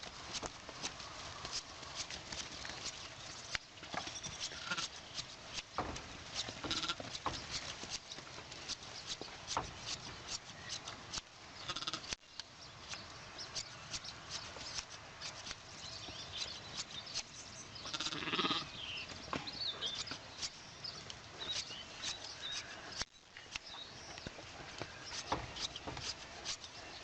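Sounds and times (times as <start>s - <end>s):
sheep bleating: 4.5s - 4.9s, 6.7s - 7.0s, 11.6s - 12.1s, 17.8s - 18.7s.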